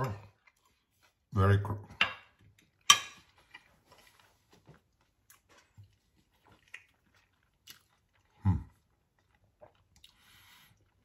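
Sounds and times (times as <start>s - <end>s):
person chewing with crunching clicks: 2.6s - 11.0s.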